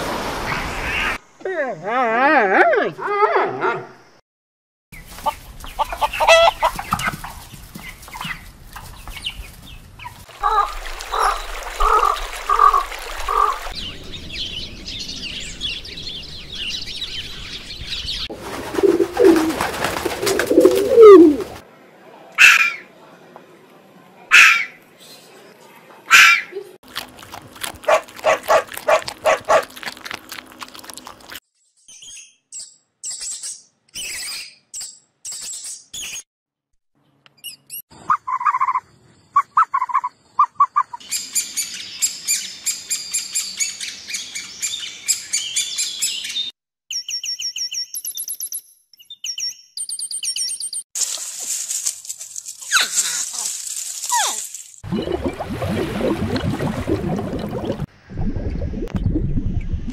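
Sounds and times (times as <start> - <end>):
dense bird twittering: 9.0 - 19.5, 37.4 - 50.8
sharp animal calls: 22.4 - 22.9, 24.3 - 24.8, 26.1 - 26.5
bird chirps: 37.0 - 50.8.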